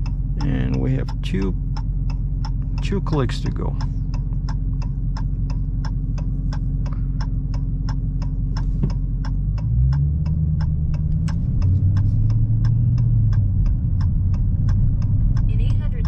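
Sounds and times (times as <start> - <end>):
car engine droning: 0.0 - 16.0
turn signal ticking: 0.0 - 16.0.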